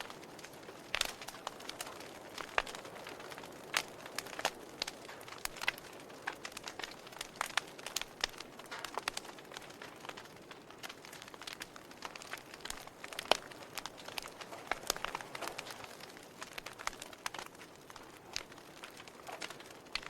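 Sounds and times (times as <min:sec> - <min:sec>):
soft fire hiss: 0:00.0 - 0:20.0
wood fire crackling and popping: 0:00.0 - 0:20.0.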